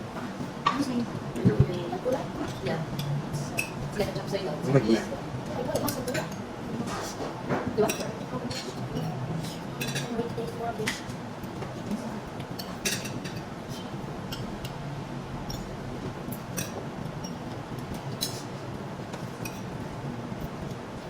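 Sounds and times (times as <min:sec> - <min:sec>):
room hum: 0:00.0 - 0:21.0
cutlery clinking against plates: 0:05.6 - 0:14.8, 0:16.3 - 0:19.8.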